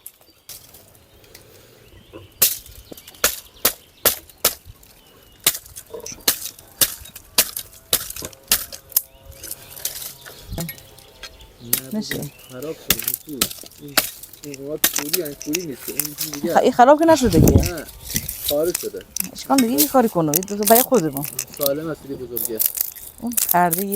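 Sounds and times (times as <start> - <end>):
sharp chopping strikes: 2.4 - 4.7, 5.4 - 9.1.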